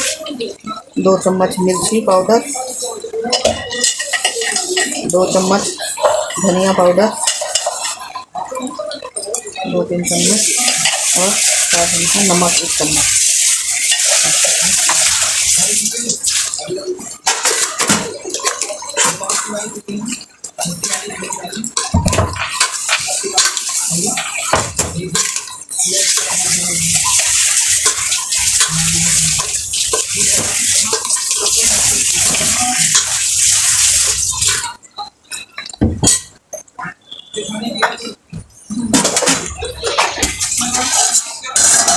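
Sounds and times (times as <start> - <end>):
food sizzling in a pan: 0.0 - 34.8, 39.7 - 41.9
spoon scraping and clinking in pan: 3.3 - 6.4, 21.8 - 24.5, 25.2 - 34.7, 40.0 - 41.9.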